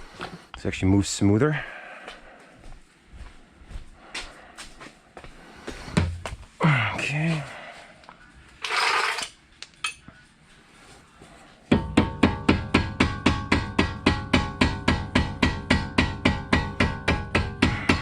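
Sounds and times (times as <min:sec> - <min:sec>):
mallet hammering on metal: 0:11.7 - 0:18.0.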